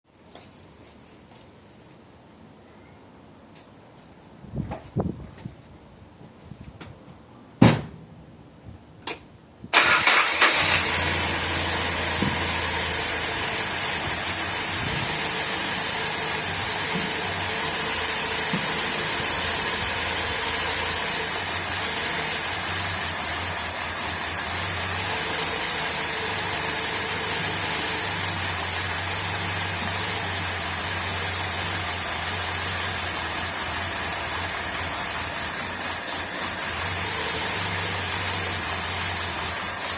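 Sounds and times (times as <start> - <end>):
car engine running: 10.0 - 39.9.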